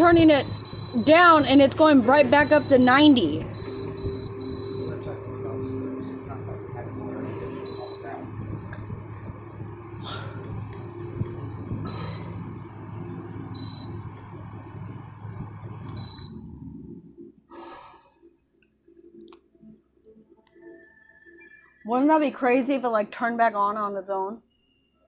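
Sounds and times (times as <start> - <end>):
air conditioner humming: 0.0 - 17.8
short high beeps: 7.6 - 8.1.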